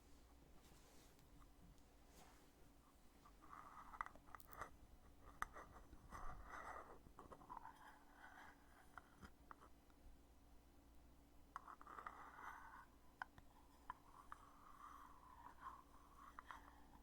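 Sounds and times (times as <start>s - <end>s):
soft scraping and handling: 0.0s - 9.3s.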